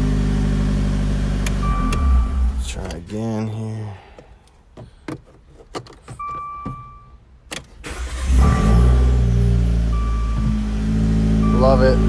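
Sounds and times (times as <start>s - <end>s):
car engine cranking and starting: 0.0s - 3.1s, 5.0s - 12.0s
electronic beep: 9.9s - 10.5s, 11.4s - 12.0s.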